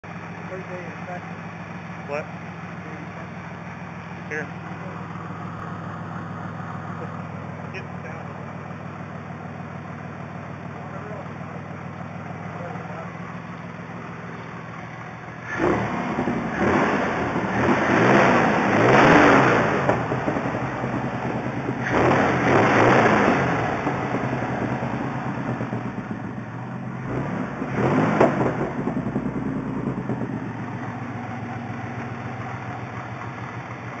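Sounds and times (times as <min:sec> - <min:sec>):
car engine idling and revving: 0:00.0 - 0:34.0.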